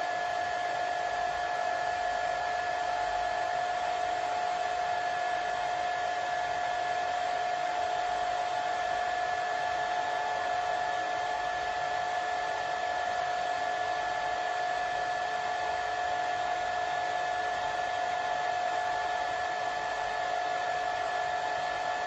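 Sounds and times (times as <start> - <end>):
hair dryer running: 0.0 - 22.0.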